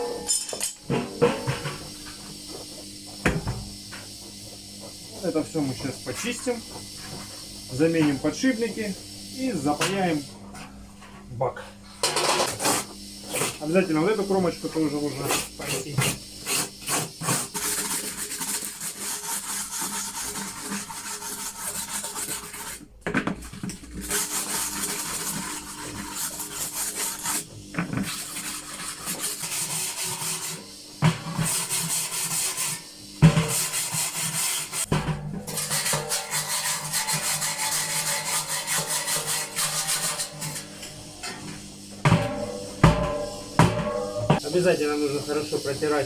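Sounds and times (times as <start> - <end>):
abrasive hand scrubbing: 12.6 - 22.8, 24.0 - 30.6, 35.6 - 40.6.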